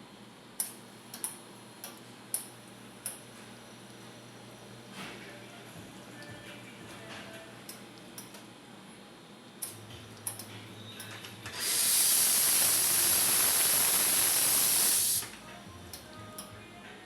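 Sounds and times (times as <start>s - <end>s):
steam wand hissing: 11.6s - 15.3s.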